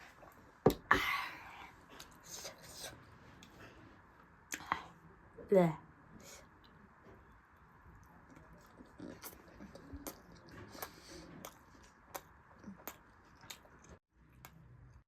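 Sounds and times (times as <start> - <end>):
close-miked chewing: 6.6 - 15.0.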